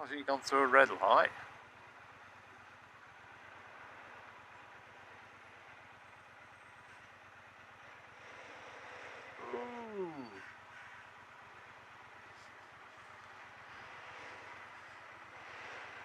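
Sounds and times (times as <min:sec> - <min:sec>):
motorcycle engine running: 0:00.0 - 0:16.0
crow cawing: 0:10.4 - 0:11.2.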